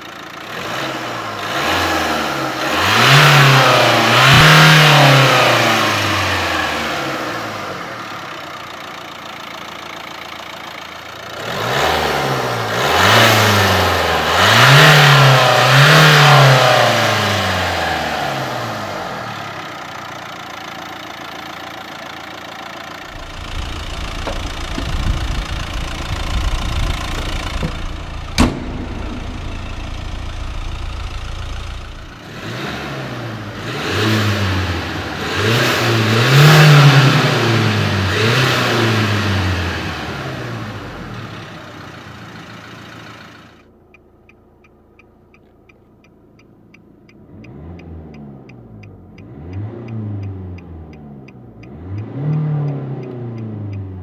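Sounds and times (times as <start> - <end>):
diesel car engine revving: 0.0 - 54.0
sharp click: 27.2 - 29.8, 44.0 - 54.0.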